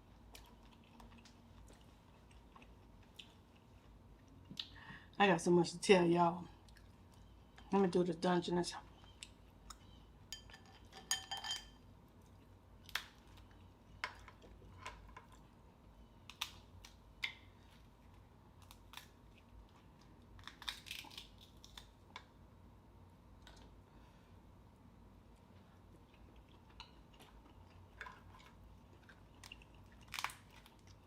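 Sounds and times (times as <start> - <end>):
crab shell cracking: 16.3 - 17.4, 20.3 - 22.3, 30.0 - 30.8.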